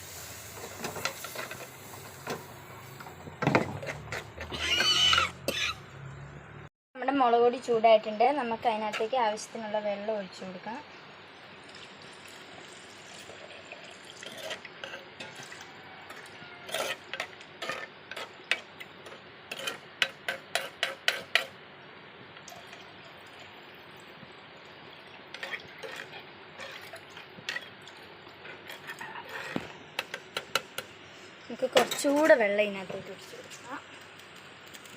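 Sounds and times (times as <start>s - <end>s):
spoon scraping a pan: 0.6s - 5.8s, 14.2s - 21.6s, 25.3s - 27.8s, 28.4s - 30.9s.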